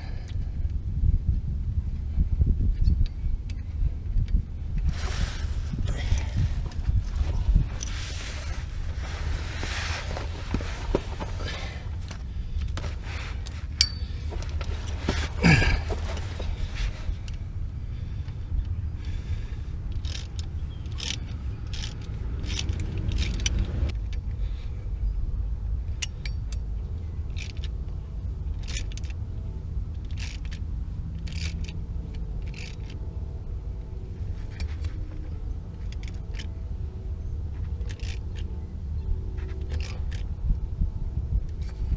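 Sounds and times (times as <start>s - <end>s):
steady low rumble: 0.0s - 41.9s
metal tools clinking: 13.4s - 16.6s.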